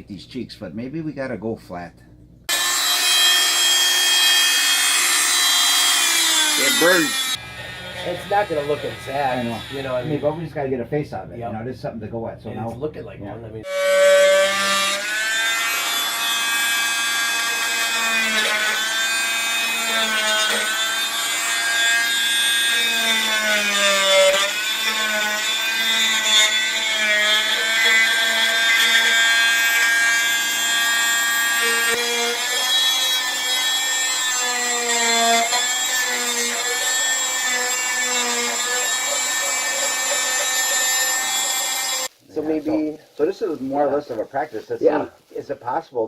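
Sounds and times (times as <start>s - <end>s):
rotary tool carving wood: 2.5s - 10.3s, 13.6s - 42.1s.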